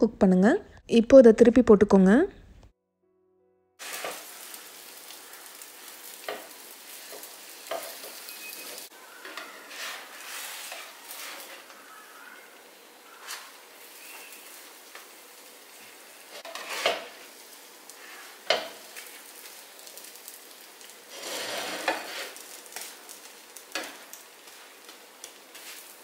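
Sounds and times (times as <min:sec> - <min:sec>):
food sizzling in oil: 0:03.8 - 0:26.0
spatula scraping pan: 0:09.1 - 0:11.9, 0:13.2 - 0:14.6, 0:16.3 - 0:17.3, 0:21.1 - 0:22.5.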